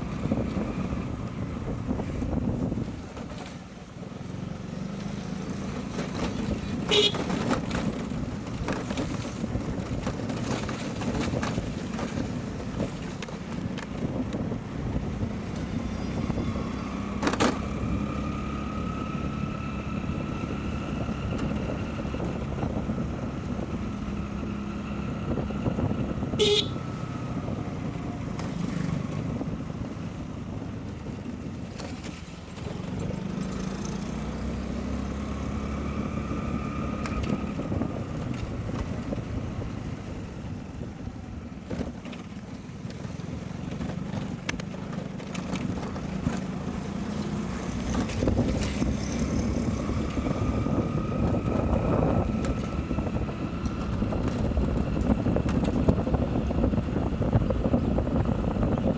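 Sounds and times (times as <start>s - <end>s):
motorcycle engine running: 0.0s - 58.9s
road and wind noise: 0.0s - 58.9s.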